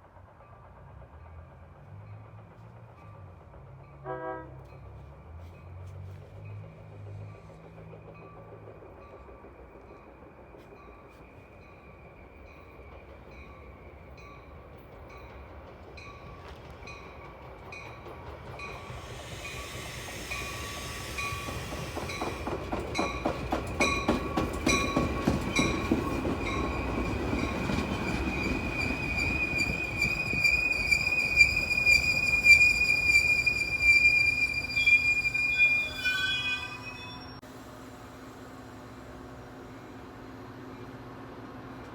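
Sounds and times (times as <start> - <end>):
train passing: 0.0 - 41.9
wheels clicking over rail joints: 12.5 - 35.6
railroad crossing bell ringing: 18.6 - 37.4
high wheel squeal: 18.7 - 22.5, 25.2 - 37.4.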